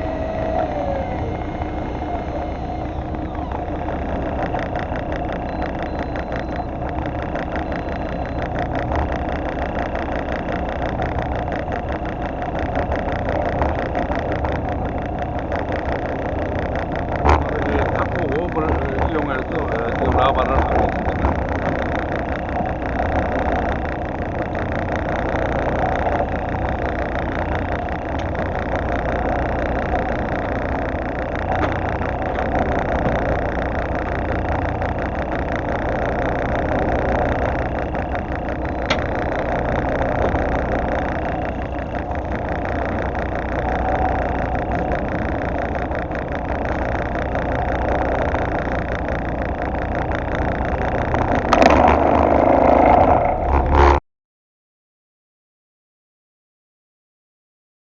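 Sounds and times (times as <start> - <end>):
boat engine humming: 0.0 - 54.0
water noise: 0.0 - 54.0.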